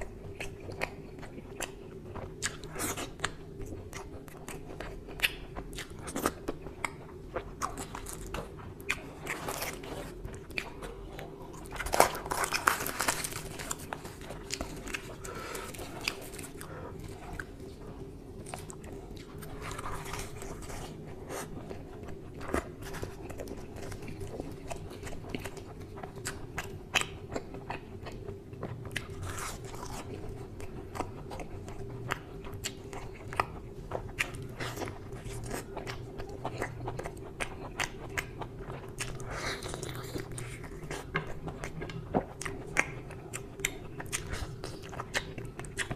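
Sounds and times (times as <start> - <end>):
steady low hum: 0.0 - 45.9
wet chewing and biting clicks: 21.7 - 45.9.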